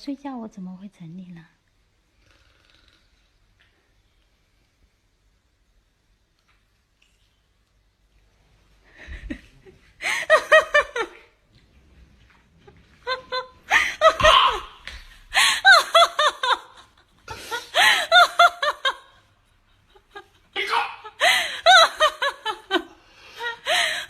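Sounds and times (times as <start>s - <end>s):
person giggling: 12.8s - 24.0s.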